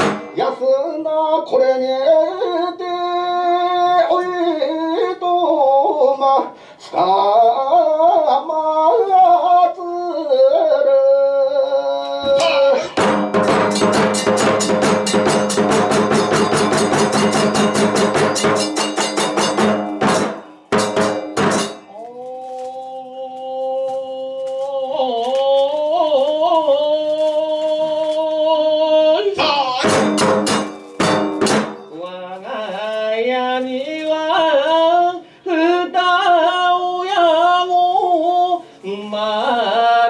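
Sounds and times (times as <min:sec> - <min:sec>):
drums: 0:00.0 - 0:00.7, 0:12.2 - 0:22.2, 0:29.2 - 0:33.3
hand cymbals: 0:12.4 - 0:22.0, 0:29.8 - 0:32.4.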